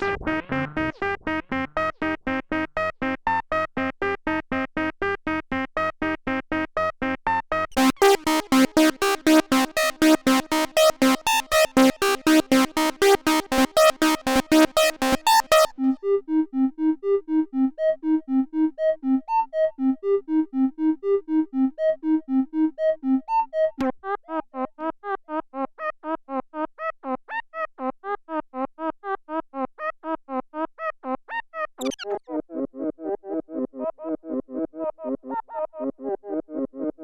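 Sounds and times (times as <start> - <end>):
synthesizer sequenced pattern: 0.0 - 2.2, 7.7 - 23.2, 31.8 - 32.2.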